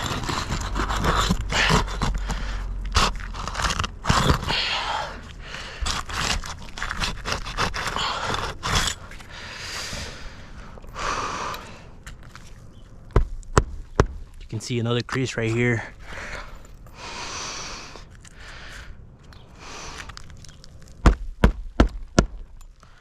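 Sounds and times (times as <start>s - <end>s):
roof shingle scraping and crunching: 0.0s - 11.0s, 19.6s - 23.0s.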